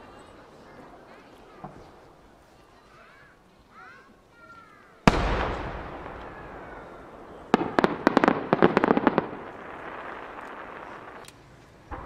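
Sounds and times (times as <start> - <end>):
firework shell boom: 5.1 - 9.4
firework crackling sub-bursts: 5.1 - 12.0.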